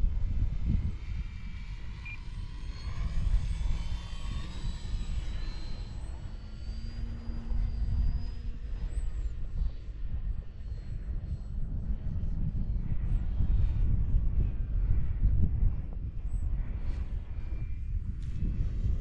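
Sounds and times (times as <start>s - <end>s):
wind rumble on microphone: 0.0s - 19.0s
model plane motor whining: 0.7s - 11.0s.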